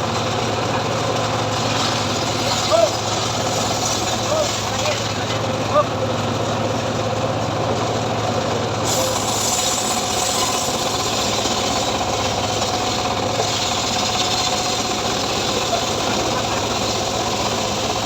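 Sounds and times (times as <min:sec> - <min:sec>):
saw engine running: 0:00.0 - 0:07.4, 0:08.8 - 0:18.0
hissing noise: 0:08.9 - 0:18.0.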